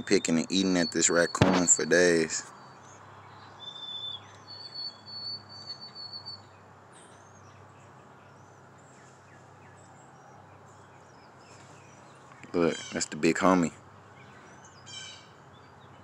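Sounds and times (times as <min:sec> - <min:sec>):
faint bird chirps: 0:00.0 - 0:16.0
small bird trilling: 0:03.4 - 0:07.6.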